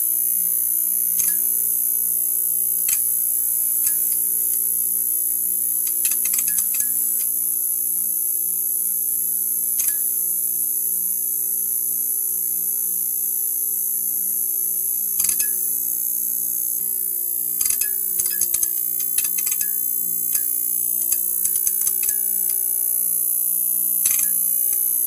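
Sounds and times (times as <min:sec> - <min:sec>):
neon sign electrical hum: 0:00.0 - 0:25.0
crackling clicks: 0:17.6 - 0:22.6, 0:24.0 - 0:24.9.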